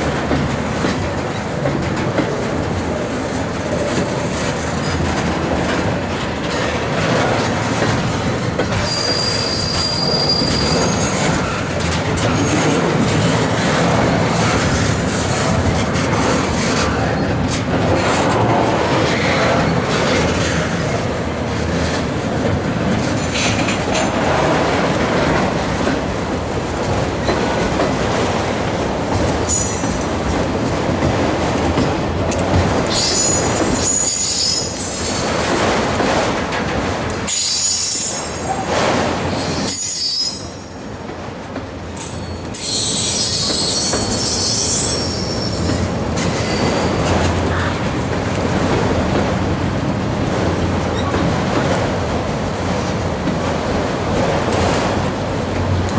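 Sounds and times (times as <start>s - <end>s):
train wheels rumbling on rails: 0.0s - 55.9s
steel wheel squeal: 8.8s - 11.7s, 29.4s - 30.2s, 32.9s - 35.8s, 37.3s - 38.6s, 39.3s - 40.7s, 42.0s - 47.0s.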